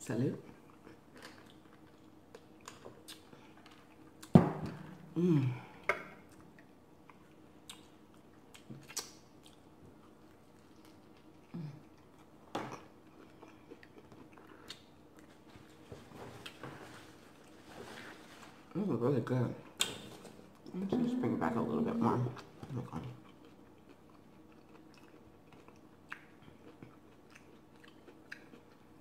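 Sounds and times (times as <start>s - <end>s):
person chewing food: 0.5s - 18.2s, 22.4s - 29.0s
person humming briefly: 5.0s - 5.8s
mouth clicks and smacks: 8.6s - 9.6s.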